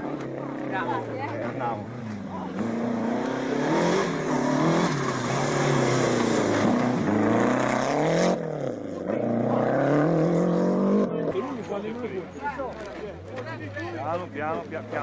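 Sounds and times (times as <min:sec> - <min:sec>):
car engine revving hard: 0:01.5 - 0:11.7.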